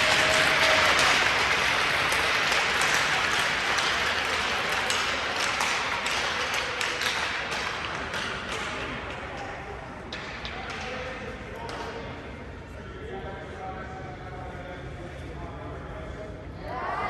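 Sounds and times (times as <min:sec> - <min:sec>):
crowd applause: 0:00.0 - 0:09.4.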